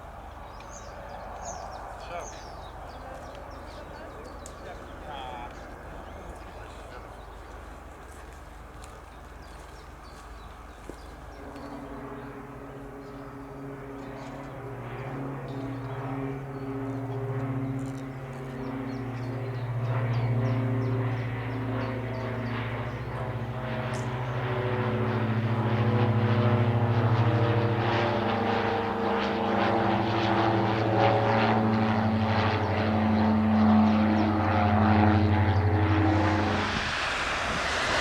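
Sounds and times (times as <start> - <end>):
jet engines humming: 0.0 - 8.0, 9.4 - 38.0
broad rush: 35.7 - 38.0.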